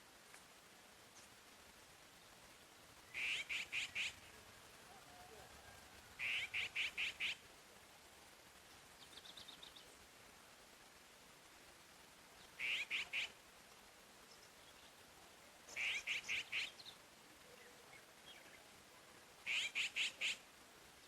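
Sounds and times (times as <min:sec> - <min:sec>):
faint steady hiss: 0:00.0 - 0:21.0
songbird singing clear notes: 0:03.0 - 0:04.4, 0:06.2 - 0:07.4, 0:08.7 - 0:10.0, 0:12.4 - 0:13.3, 0:15.7 - 0:18.7.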